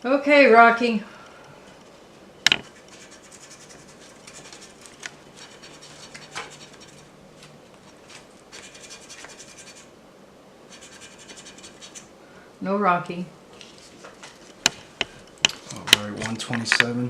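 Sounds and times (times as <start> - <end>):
scratch-off ticket being scratched: 2.5 - 7.2, 7.9 - 9.9, 10.7 - 12.1.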